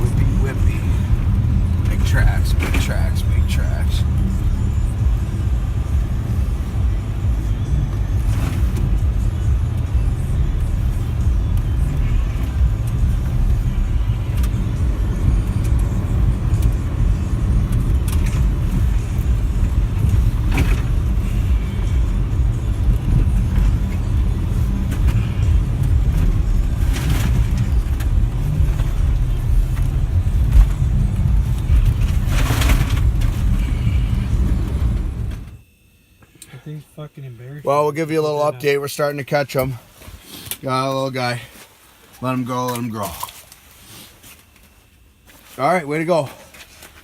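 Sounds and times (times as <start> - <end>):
car driving through snow: 0.0 - 35.6.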